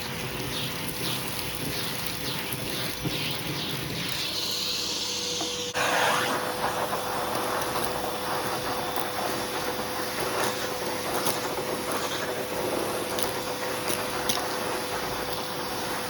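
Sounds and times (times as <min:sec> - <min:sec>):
vacuum cleaner running: 0:03.0 - 0:16.0.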